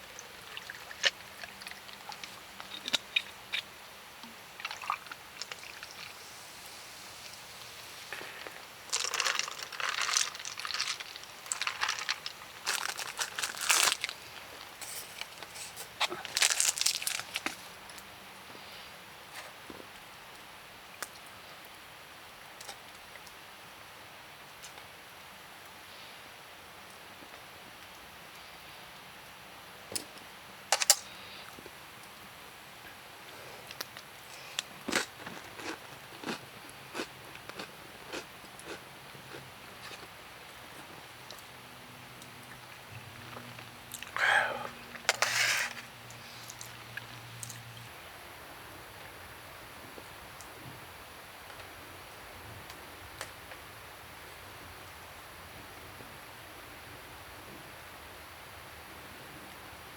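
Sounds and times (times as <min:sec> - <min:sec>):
person chewing crunchy food: 0:08.0 - 0:17.6, 0:34.4 - 0:40.1
crinkling and rustling: 0:08.1 - 0:18.0.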